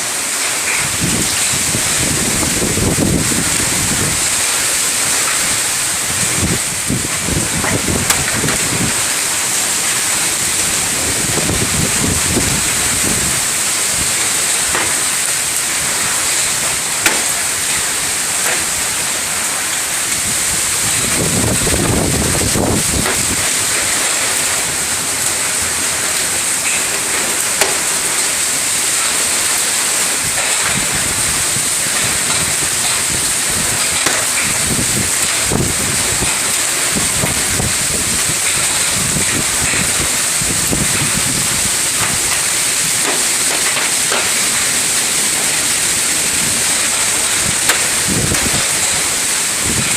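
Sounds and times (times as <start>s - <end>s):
heavy rain pouring: 0.0s - 49.9s
low rumbling thunder: 0.8s - 4.5s, 5.5s - 9.2s, 10.6s - 15.0s, 20.3s - 23.8s, 30.6s - 42.4s, 46.2s - 49.9s.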